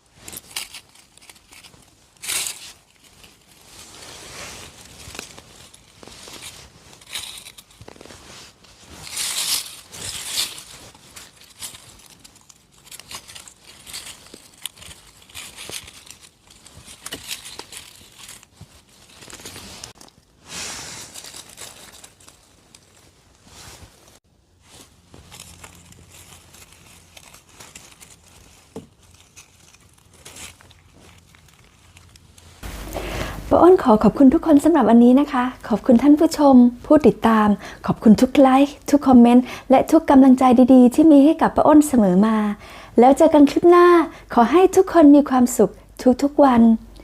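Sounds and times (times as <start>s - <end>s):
tearing and crackling: 0.0s - 32.9s
hands rustling dry leaf litter: 0.0s - 36.3s.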